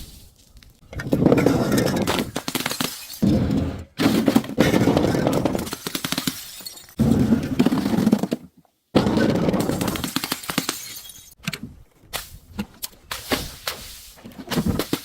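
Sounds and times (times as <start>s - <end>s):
glass breaking and crunching: 1.4s - 3.2s, 4.2s - 7.0s, 9.6s - 11.4s.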